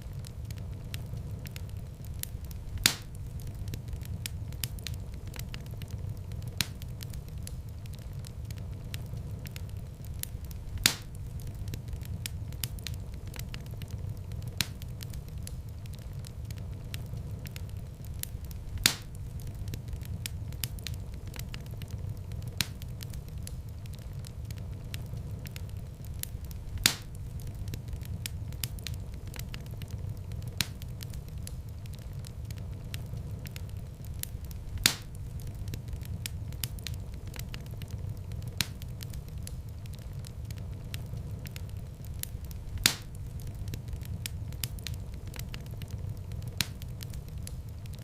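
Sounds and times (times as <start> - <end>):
loud fire crack: 0.0 - 48.0
wood fire crackling: 0.0 - 48.0.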